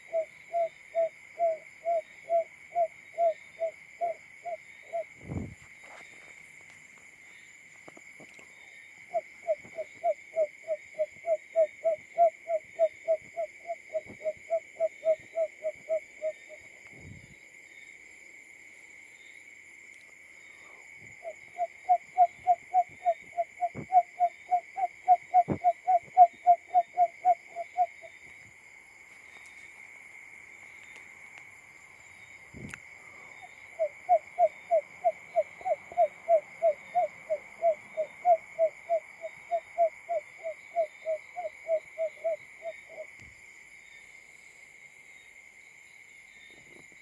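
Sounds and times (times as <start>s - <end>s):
bird low hooting call: 0.0s - 5.1s, 9.1s - 16.6s, 21.2s - 28.1s, 33.4s - 43.1s
high insect drone: 0.0s - 47.0s.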